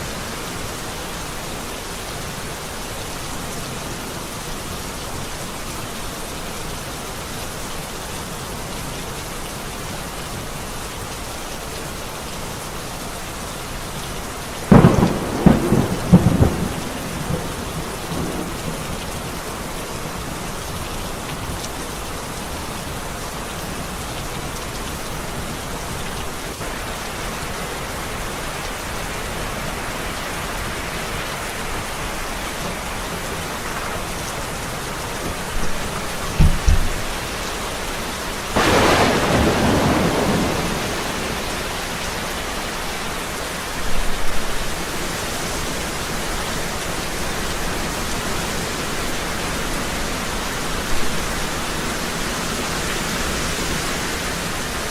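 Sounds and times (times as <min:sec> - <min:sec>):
heavy rain: 0:00.0 - 0:54.9
thunder crack: 0:14.7 - 0:18.5, 0:36.3 - 0:37.1, 0:38.6 - 0:41.8
thunder rumbling: 0:14.7 - 0:19.4, 0:35.3 - 0:37.4, 0:38.6 - 0:42.7.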